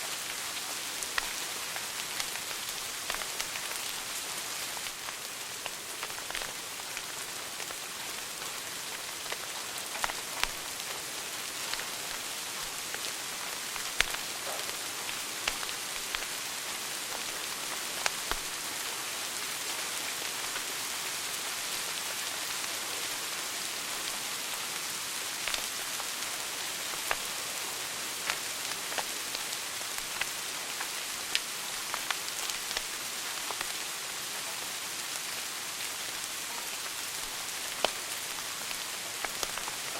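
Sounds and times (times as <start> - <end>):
fire crackling and popping: 0.9 - 18.9, 20.2 - 20.7, 25.2 - 34.0, 35.2 - 39.9.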